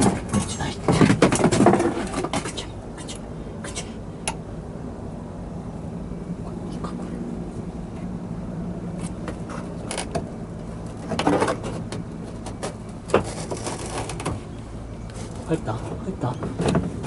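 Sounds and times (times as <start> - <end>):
diesel engine idling: 2.6 - 13.7, 14.4 - 17.0
parts clicking and knocking: 9.0 - 14.4.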